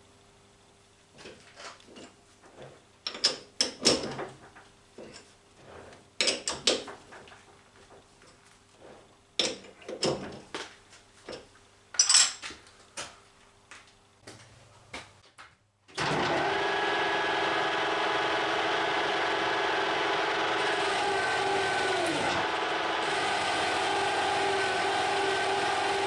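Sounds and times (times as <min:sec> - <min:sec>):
lathe running with a whine: 0:16.0 - 0:26.0.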